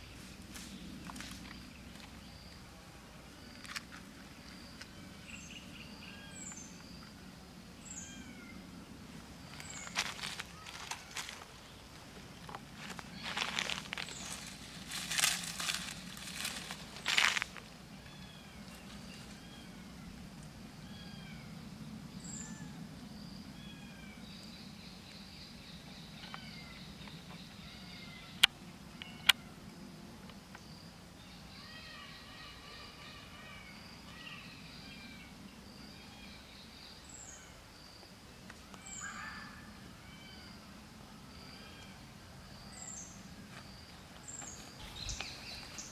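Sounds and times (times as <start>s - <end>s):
low steady hum: 0.0s - 45.9s
small birds chirping: 3.3s - 20.3s, 41.3s - 45.9s.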